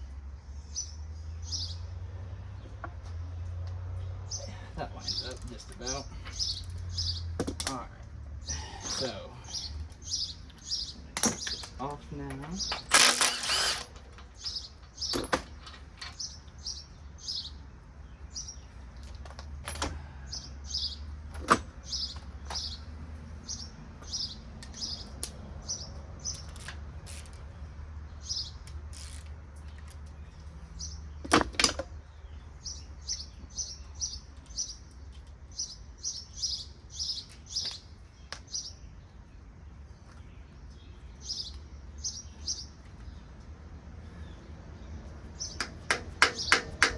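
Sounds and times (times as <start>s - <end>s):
small bird chirping: 4.0s - 7.4s, 8.4s - 11.9s, 32.0s - 43.4s
metallic knocks on engine: 45.6s - 46.9s.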